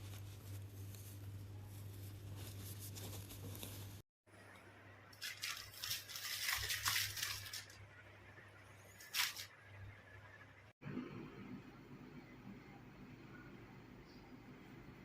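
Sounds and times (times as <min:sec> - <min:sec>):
rustling and scraping handling noise: 0:00.0 - 0:04.0, 0:05.2 - 0:07.8, 0:08.9 - 0:09.5.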